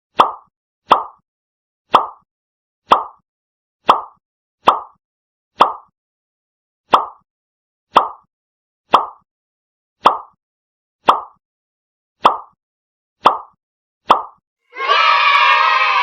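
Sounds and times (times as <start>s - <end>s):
sharp plops: 0.2s - 1.2s, 2.9s - 3.2s, 3.8s - 5.0s, 5.6s - 5.9s, 6.9s - 7.2s, 7.9s - 8.3s, 8.9s - 9.2s, 10.0s - 10.4s, 11.0s - 11.4s, 12.2s - 12.6s, 13.2s - 14.4s.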